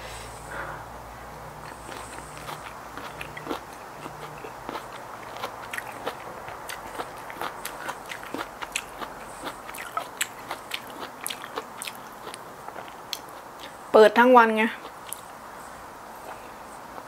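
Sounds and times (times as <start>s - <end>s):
wet chewing and mouth clicks: 1.6s - 13.8s, 14.8s - 15.3s.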